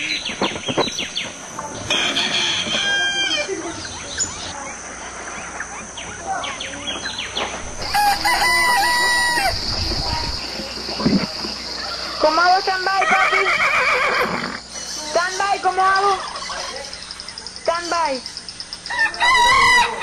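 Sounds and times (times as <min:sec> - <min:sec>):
rooster crowing: 0:01.9 - 0:03.6, 0:07.6 - 0:10.5, 0:18.9 - 0:20.0.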